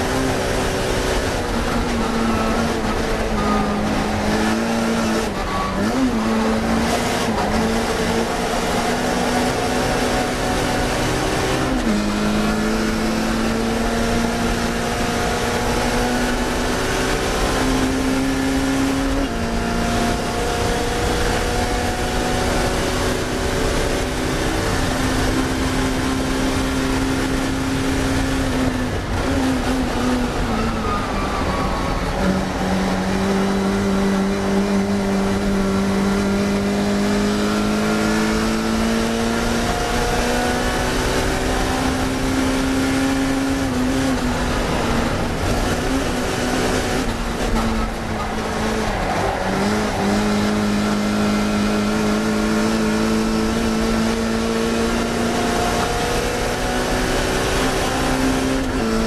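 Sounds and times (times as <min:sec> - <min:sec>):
racing car engine at high revs: 0:00.0 - 0:59.0.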